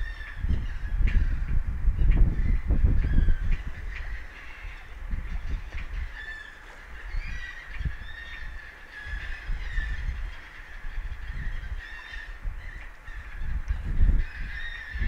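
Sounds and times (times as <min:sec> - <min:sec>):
wind buffeting microphone: 0:00.0 - 0:15.0
honking bird calls: 0:02.0 - 0:15.0.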